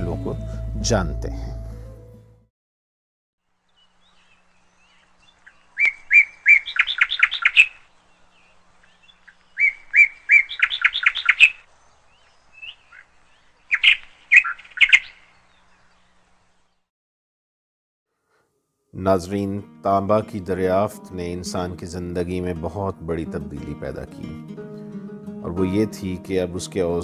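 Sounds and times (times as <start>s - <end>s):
songbird singing: 3.4s - 16.9s.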